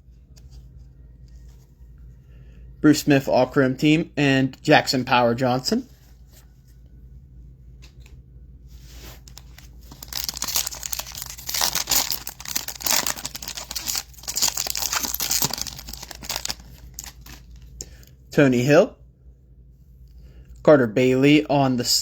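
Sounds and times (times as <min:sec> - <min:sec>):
wrapper tearing and crinkling: 0:09.2 - 0:17.7.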